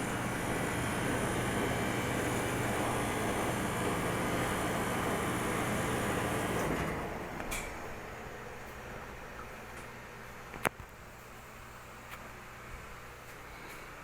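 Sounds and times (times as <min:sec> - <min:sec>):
ice cream machine humming: 0:00.0 - 0:10.2.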